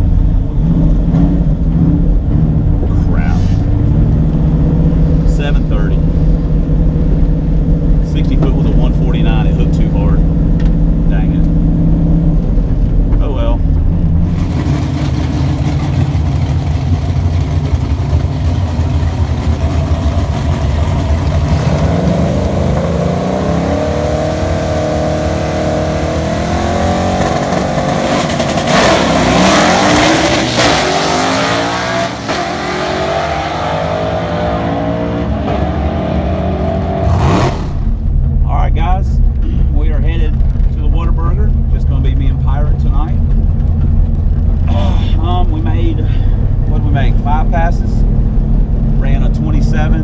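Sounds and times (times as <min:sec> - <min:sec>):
drag car engine revving: 0:13.8 - 0:38.5.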